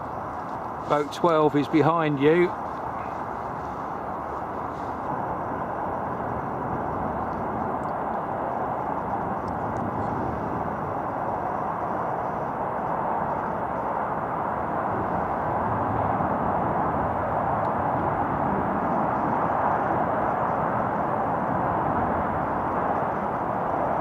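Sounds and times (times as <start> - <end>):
rushing outdoor ambience: 0.0 - 24.0.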